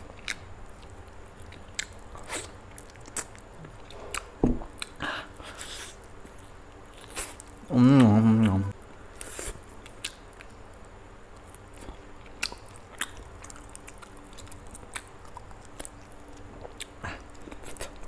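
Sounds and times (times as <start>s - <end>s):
chewing and biting chicken: 11.5s - 18.0s.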